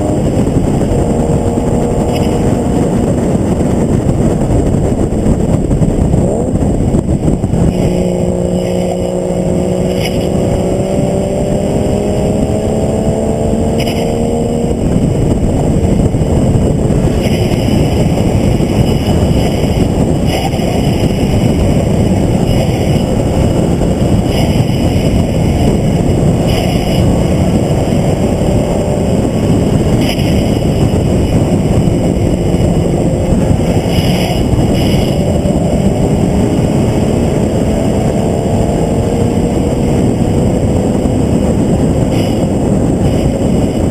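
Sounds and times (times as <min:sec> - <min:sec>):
car engine accelerating: 0:00.0 - 0:43.9
wind and road noise: 0:00.0 - 0:43.9.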